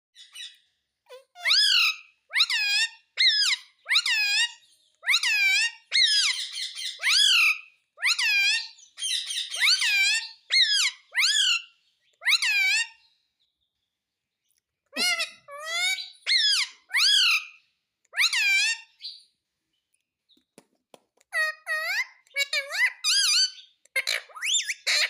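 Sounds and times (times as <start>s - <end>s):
parrot shrill calls: 1.1s - 13.0s, 15.0s - 19.2s, 21.3s - 25.0s.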